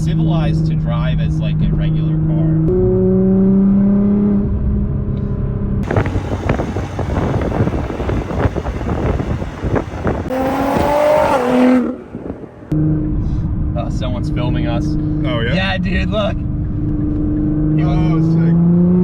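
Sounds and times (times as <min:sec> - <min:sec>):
car engine accelerating hard: 0:05.8 - 0:13.1.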